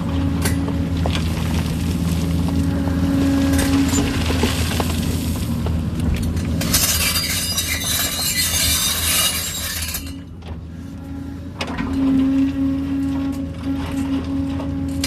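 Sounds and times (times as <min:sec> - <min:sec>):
excavator diesel engine: 0:00.0 - 0:09.5, 0:10.1 - 0:15.0
rock and soil scraping: 0:00.9 - 0:10.0.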